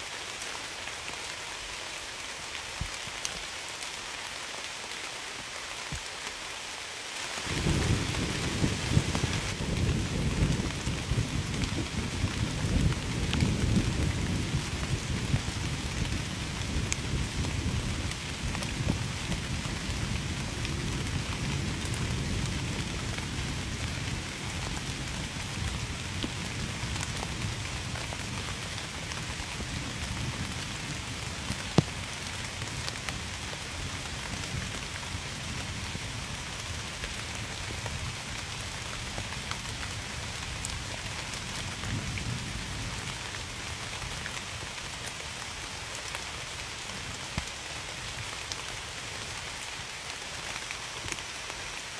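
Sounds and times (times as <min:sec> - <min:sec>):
steady rain: 0:00.0 - 0:51.9.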